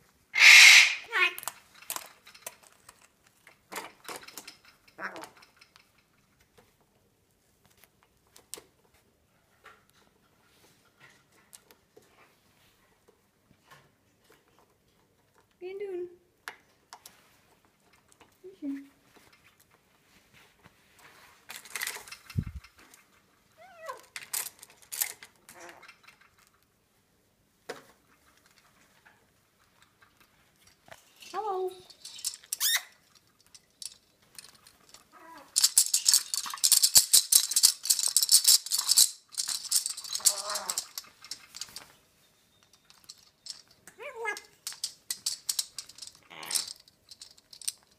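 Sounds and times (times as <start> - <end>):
parrot screeching: 0.4 - 1.4, 40.3 - 40.9, 46.3 - 46.7
parrot making clicks and taps: 40.1 - 41.0.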